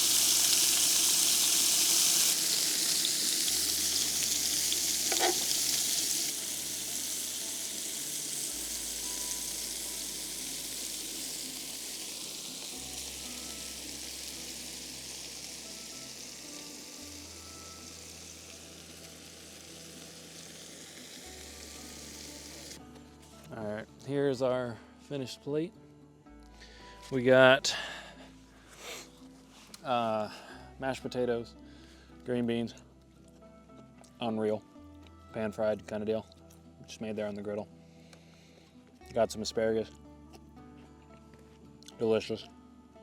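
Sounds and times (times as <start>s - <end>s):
steak sizzling in oil: 0.0s - 22.8s.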